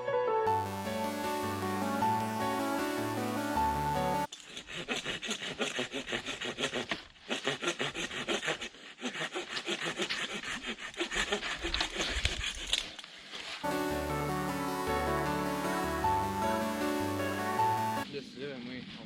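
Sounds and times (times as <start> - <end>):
hand saw cutting wood: 4.3 - 13.0.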